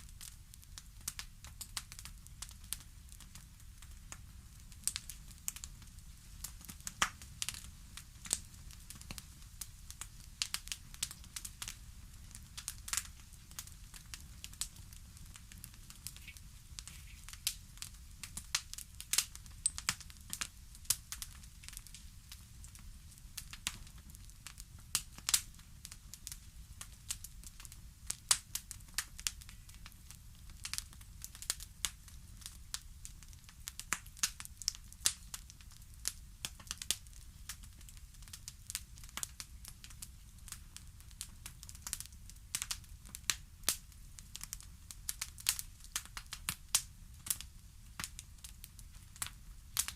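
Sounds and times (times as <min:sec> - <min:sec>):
fire crackling: 0:00.0 - 0:49.9.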